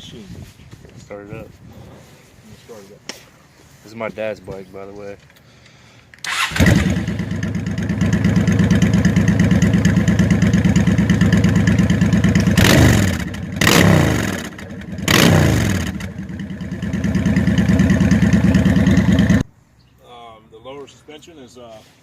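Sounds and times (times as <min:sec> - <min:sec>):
motorcycle engine idling and revving: 0:06.3 - 0:19.5.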